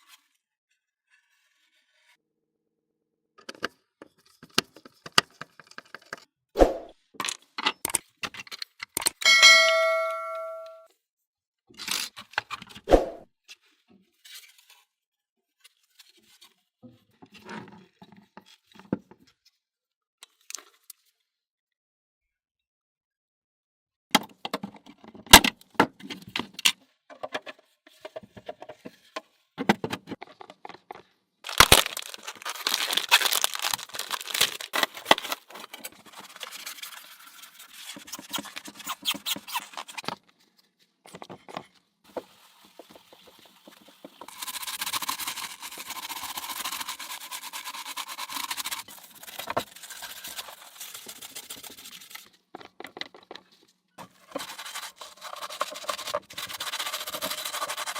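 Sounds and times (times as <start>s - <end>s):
rough scraping: 31.5s - 35.9s.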